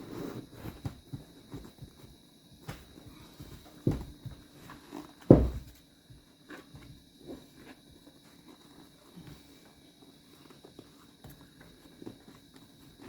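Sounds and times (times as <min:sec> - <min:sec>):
dull thumps: 0:00.6 - 0:04.4, 0:05.2 - 0:05.8.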